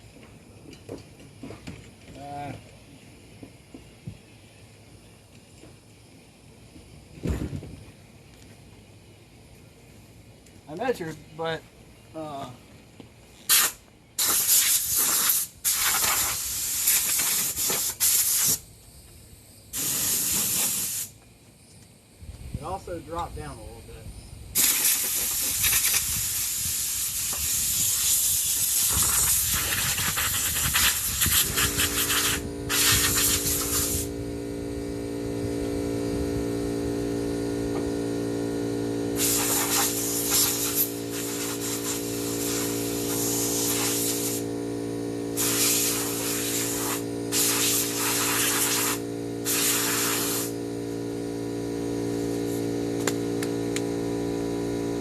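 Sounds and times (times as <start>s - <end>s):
bursts of hissing air: 13.4s - 18.8s, 19.7s - 21.2s, 24.5s - 55.0s
steady machine hum: 28.7s - 55.0s.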